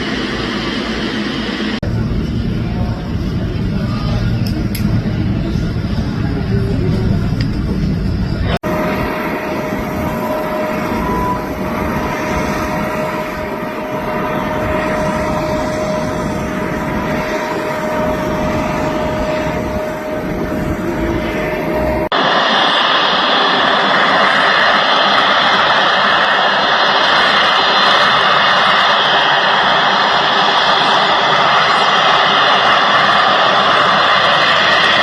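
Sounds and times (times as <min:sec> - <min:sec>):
aircraft engine running: 0:00.0 - 0:35.0
higher-pitched aircraft engine: 0:00.0 - 0:35.0.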